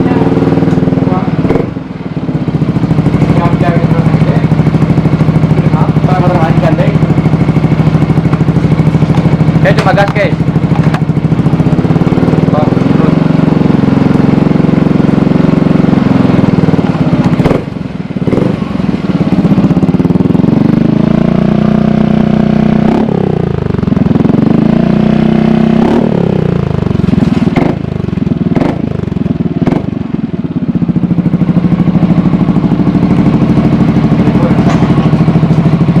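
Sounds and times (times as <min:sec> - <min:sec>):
exhaust pops: 0:00.0 - 0:02.0, 0:03.0 - 0:11.4, 0:16.3 - 0:18.7, 0:25.8 - 0:30.2, 0:30.9 - 0:36.0
scooter engine idling and revving: 0:00.0 - 0:36.0.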